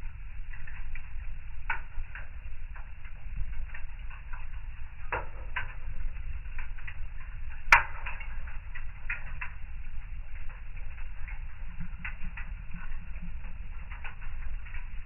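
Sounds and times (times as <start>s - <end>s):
low steady fire rumble: 0.0s - 15.0s
wood fire crackling: 0.0s - 15.0s
sharp fire pop: 7.7s - 9.6s.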